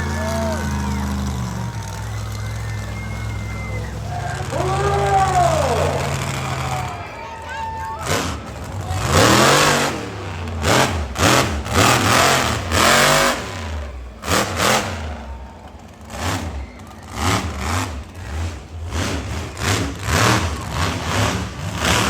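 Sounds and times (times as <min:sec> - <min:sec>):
monster truck engine revving: 0:00.0 - 0:22.0.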